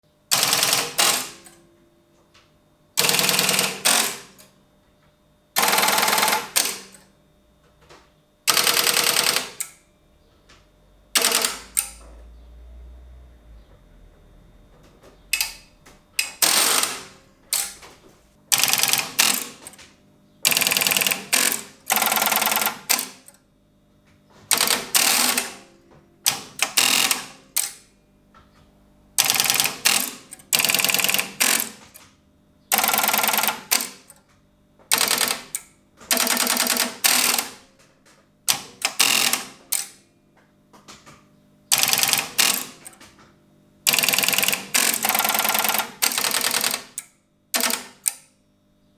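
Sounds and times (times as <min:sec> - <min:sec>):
telephone exchange switches clicking: 0:00.3 - 0:01.6, 0:03.0 - 0:04.5, 0:05.6 - 0:07.1, 0:08.5 - 0:09.8, 0:11.2 - 0:12.1, 0:15.3 - 0:19.8, 0:20.5 - 0:23.4, 0:24.5 - 0:25.7, 0:26.3 - 0:27.9, 0:29.2 - 0:32.0, 0:32.7 - 0:34.2, 0:34.9 - 0:37.6, 0:38.5 - 0:40.0, 0:41.7 - 0:43.1, 0:43.9 - 0:48.3.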